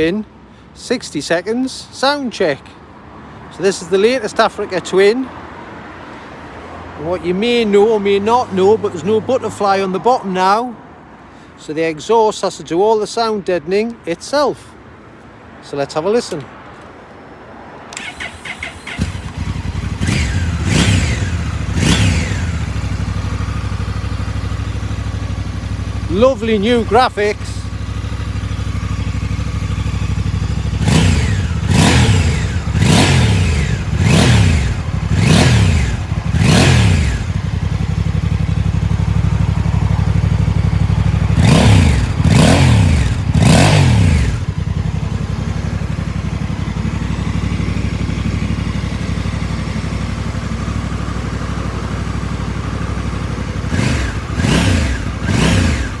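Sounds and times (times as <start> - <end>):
motorcycle engine idling and revving: 7.0 - 10.2, 17.9 - 56.0.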